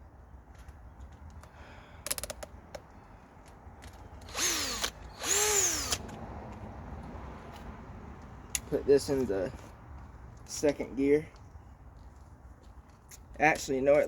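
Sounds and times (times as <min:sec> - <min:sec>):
cordless drill motor spinning: 0:04.2 - 0:06.0.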